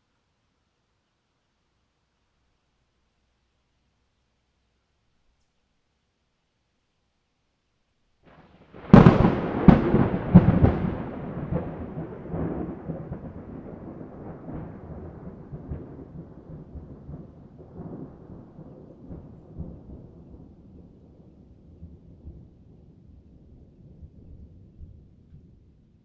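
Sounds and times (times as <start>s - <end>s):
thunder cracking and rumbling: 8.3s - 26.0s.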